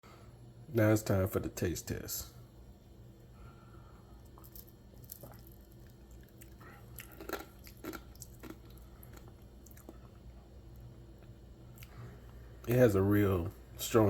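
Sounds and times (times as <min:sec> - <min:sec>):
sipping and swallowing: 0:04.3 - 0:10.2.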